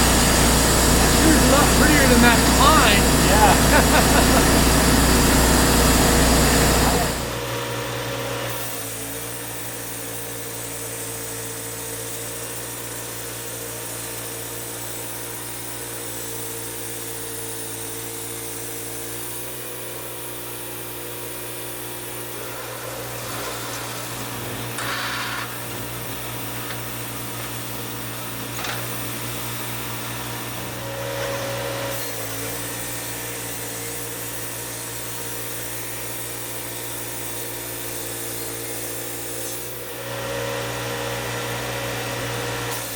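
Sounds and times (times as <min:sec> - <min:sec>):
sawmill humming: 0:00.0 - 0:07.5, 0:21.9 - 0:35.7.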